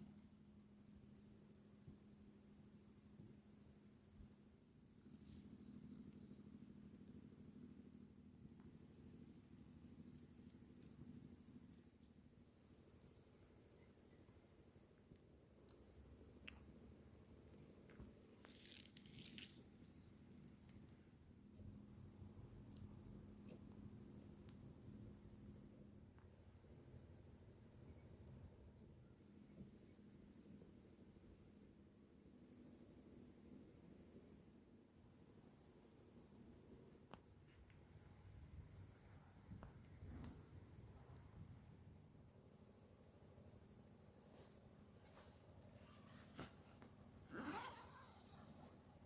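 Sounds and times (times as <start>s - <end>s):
insects chirring: 0.0s - 49.0s
rustle: 13.8s - 21.1s, 43.6s - 49.0s.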